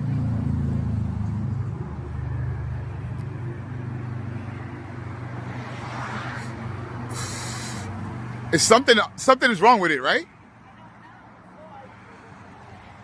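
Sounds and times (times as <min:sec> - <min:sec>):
vehicle engine idling: 0:00.0 - 0:05.6, 0:06.4 - 0:12.4
short rush of hiss: 0:06.4 - 0:07.9.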